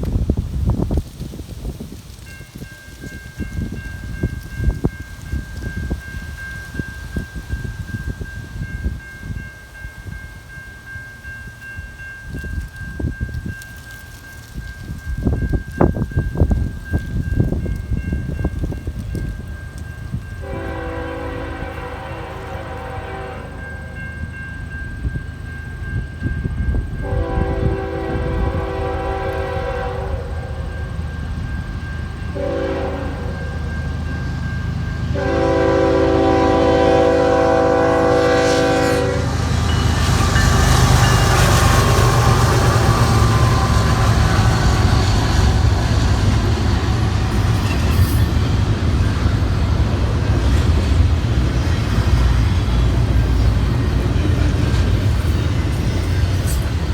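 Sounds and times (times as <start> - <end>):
freight train rumbling past: 0.0 - 56.9
wind buffeting microphone: 0.0 - 56.9
locomotive horn blasts: 20.4 - 24.0, 27.0 - 30.8, 32.3 - 33.7, 35.1 - 45.9.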